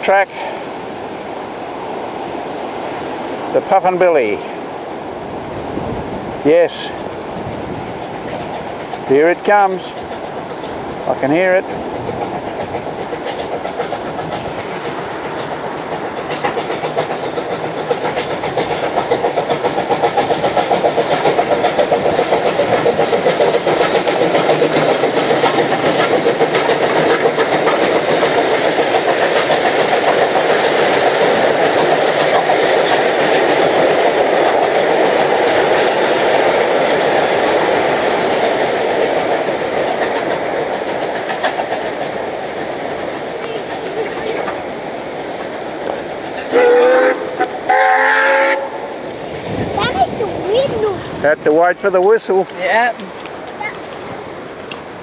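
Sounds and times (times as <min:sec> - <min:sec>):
steam train carriages rolling: 0:02.9 - 0:55.0.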